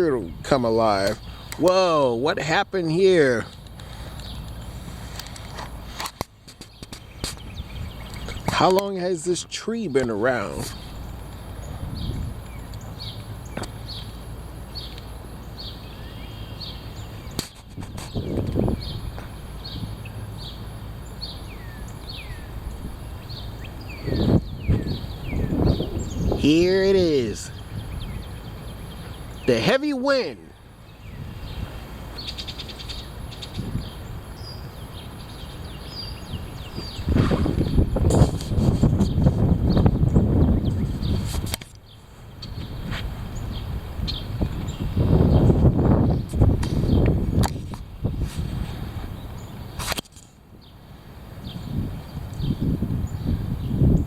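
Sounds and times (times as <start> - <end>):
wind buffeting microphone: 4.0 - 8.8, 10.2 - 15.7, 16.6 - 50.0, 50.6 - 54.0
high falling bird chirps: 6.5 - 47.1.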